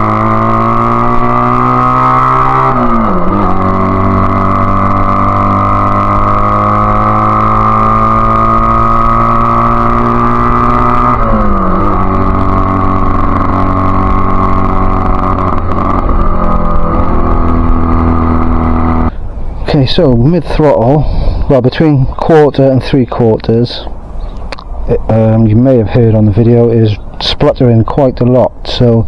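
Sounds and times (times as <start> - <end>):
motorcycle engine spluttering: 0.0 - 19.1.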